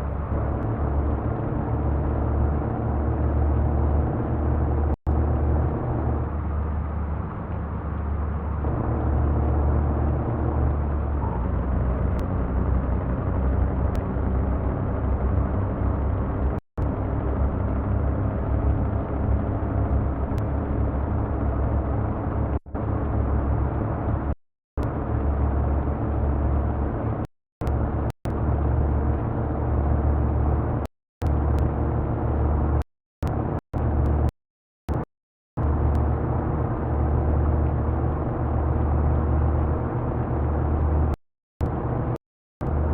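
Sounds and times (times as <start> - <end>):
truck engine running: 0.0 - 34.3.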